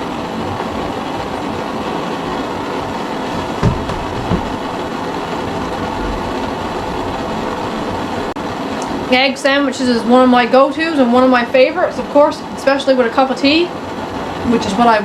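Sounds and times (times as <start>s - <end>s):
machine whirring: 0.0s - 15.0s
low thumps: 3.3s - 8.4s.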